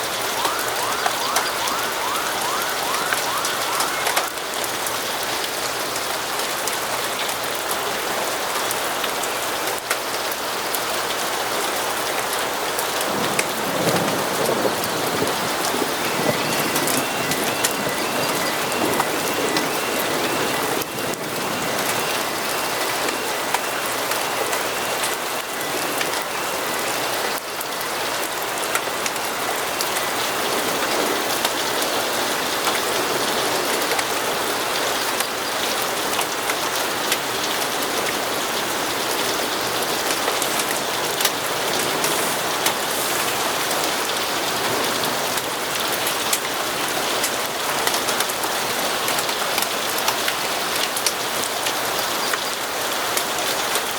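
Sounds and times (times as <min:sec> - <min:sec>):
rain falling on a hard surface: 0:00.0 - 0:53.9
faint high steady tones: 0:00.1 - 0:04.9, 0:15.5 - 0:27.3.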